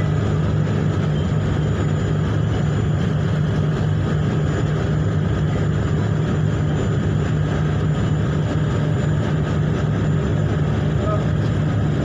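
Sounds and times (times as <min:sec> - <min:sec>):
ship engines droning: 0:00.0 - 0:12.0.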